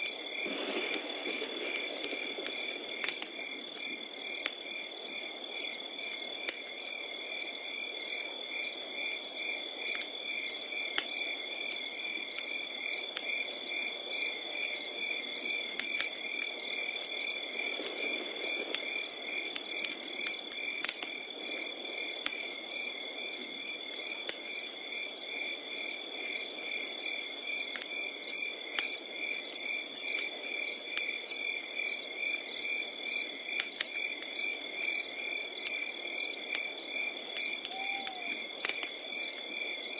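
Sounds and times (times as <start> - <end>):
low rush of flame: 0.0 - 5.6
campfire crackling and popping: 0.0 - 39.9
crickets chirping: 0.0 - 39.9
high insect trill: 22.5 - 39.9.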